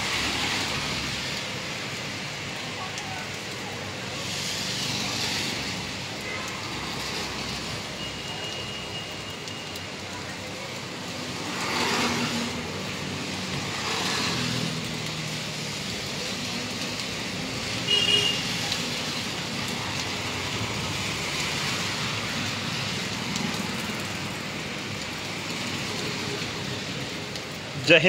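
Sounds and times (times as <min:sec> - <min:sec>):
heavy rain on wet street: 0:00.0 - 0:28.0
traffic passing through water: 0:00.0 - 0:28.0
vehicle horn toot: 0:17.9 - 0:18.4.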